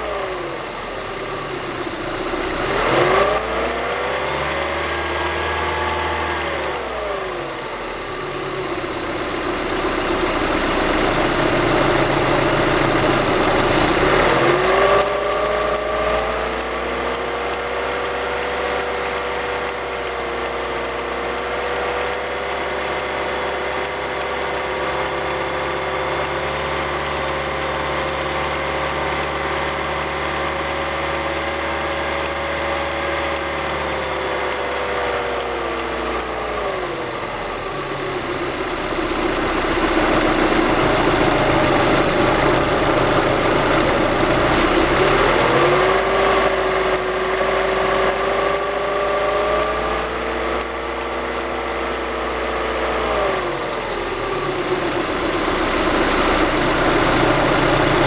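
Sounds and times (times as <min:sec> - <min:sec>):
engine crackles: 0:00.0 - 0:00.8, 0:02.6 - 0:07.2, 0:11.4 - 0:36.7, 0:41.0 - 0:53.6
petrol engine revving and idling: 0:00.0 - 0:58.0.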